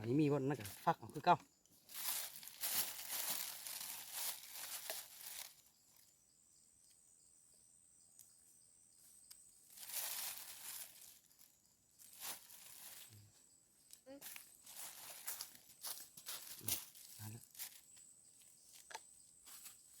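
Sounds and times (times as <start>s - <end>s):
rustling and crinkling: 1.8s - 6.1s, 9.7s - 13.4s, 14.0s - 20.0s.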